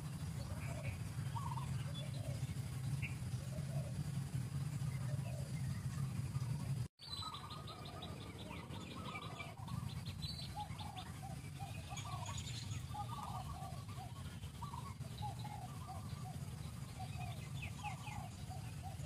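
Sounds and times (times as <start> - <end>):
birds chirping: 0.0 - 19.0
steady low rumble: 0.0 - 19.0.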